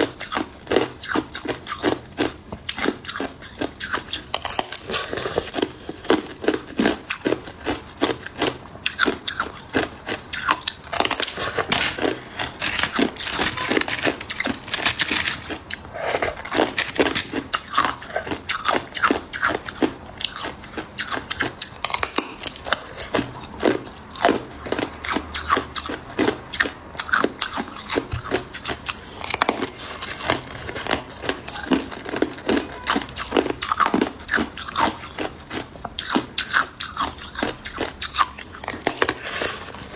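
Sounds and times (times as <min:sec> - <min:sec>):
ice cubes crunching in mouth: 0:00.0 - 0:39.9.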